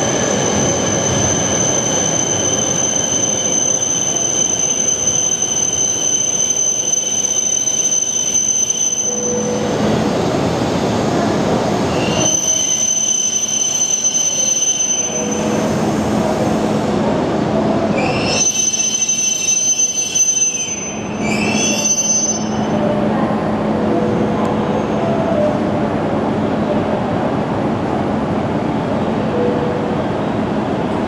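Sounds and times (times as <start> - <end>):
train running hum: 9.1 - 12.3, 15.0 - 18.4, 20.7 - 31.0
high-pitched metallic squealing: 17.8 - 23.0.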